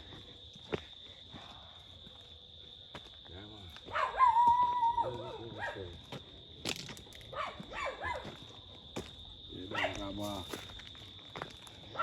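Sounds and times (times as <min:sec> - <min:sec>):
dog yelping barks: 0:03.9 - 0:05.8, 0:07.3 - 0:08.2, 0:09.7 - 0:10.0.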